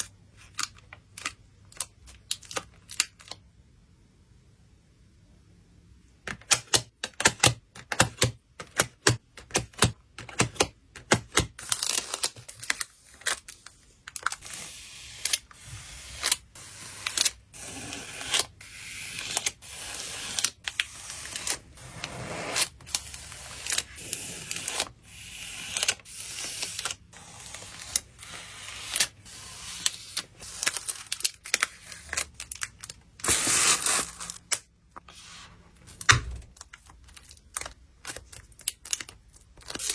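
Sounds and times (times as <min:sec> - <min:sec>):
hands tapping and clicking photocards: 0:06.3 - 0:11.6.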